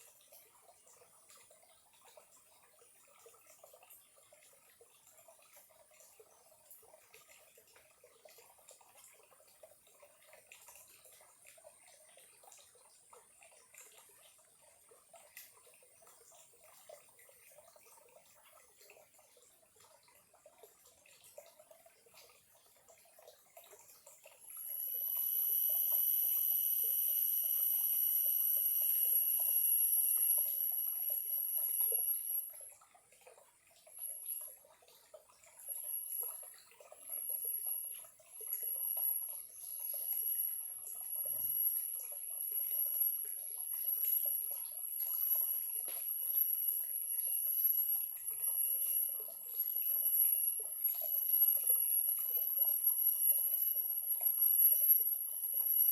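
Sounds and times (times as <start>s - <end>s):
stream trickling: 0.0s - 55.9s
shrill high-pitched whine: 24.7s - 32.6s.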